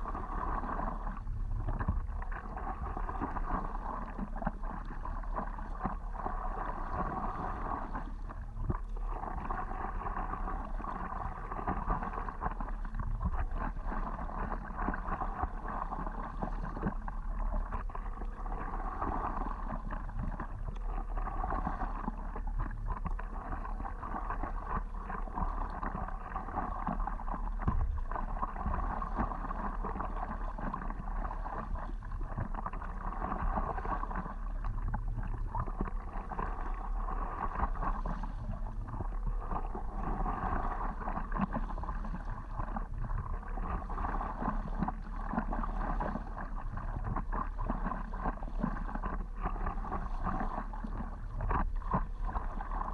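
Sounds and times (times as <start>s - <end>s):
steady low rumble: 0.0s - 52.9s
water swishing against paddleboard: 0.0s - 52.9s.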